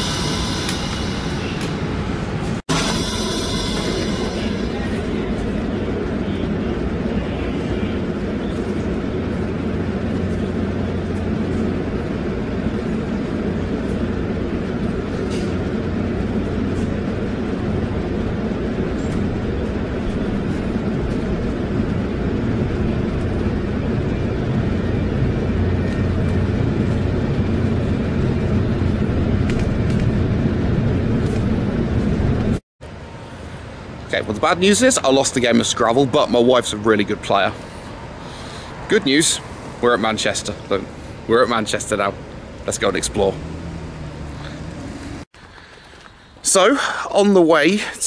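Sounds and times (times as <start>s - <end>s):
train coach rumble from inside: 0.0s - 34.2s.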